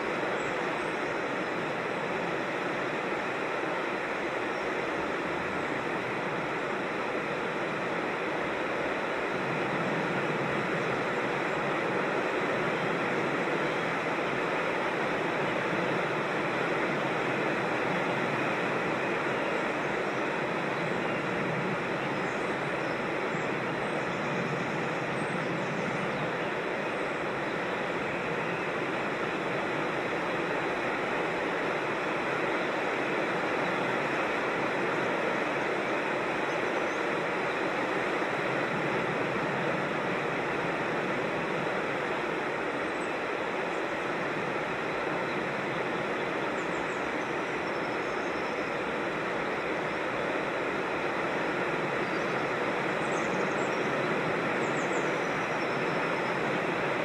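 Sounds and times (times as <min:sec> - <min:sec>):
water rushing in a creek: 0:00.0 - 0:57.0.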